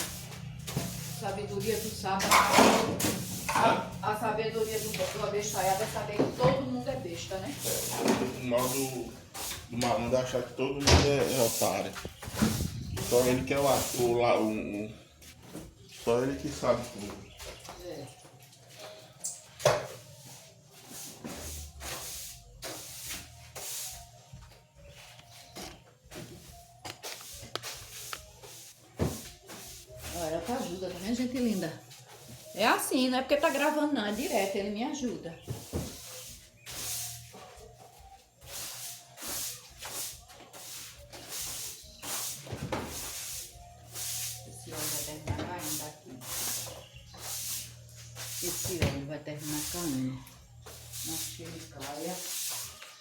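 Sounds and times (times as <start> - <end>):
scratchy scrubbing strokes: 0.0 - 2.5, 3.1 - 6.2, 7.1 - 10.5, 11.2 - 14.5, 20.0 - 24.2, 35.6 - 37.5, 38.4 - 53.0.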